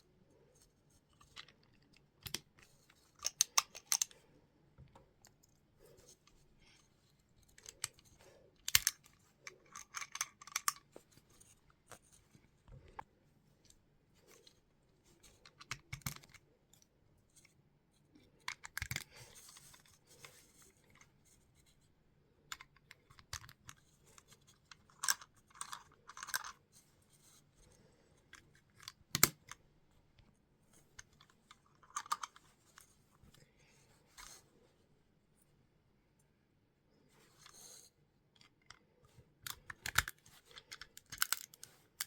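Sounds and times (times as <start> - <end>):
plastic bricks clicking together: 3.2 - 4.2, 8.6 - 10.9, 28.8 - 29.5, 39.4 - 42.0.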